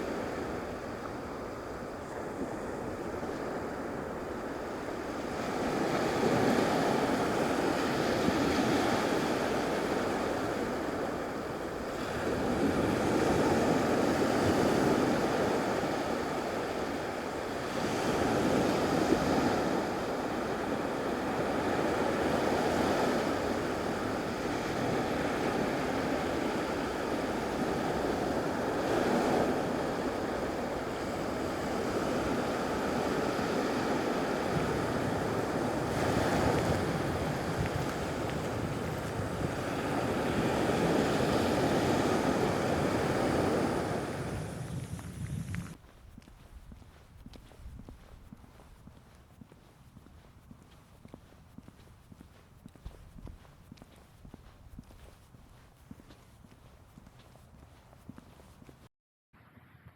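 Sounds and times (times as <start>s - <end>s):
waves washing onto beach: 0.0s - 45.8s.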